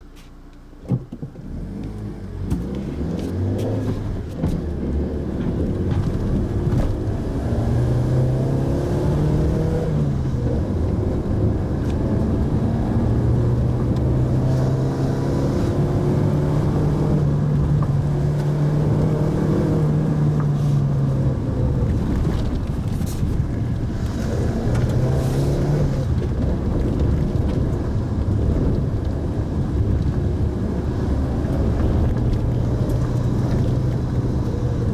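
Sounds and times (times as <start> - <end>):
car engine running: 0.0 - 34.9
road noise: 0.0 - 34.9.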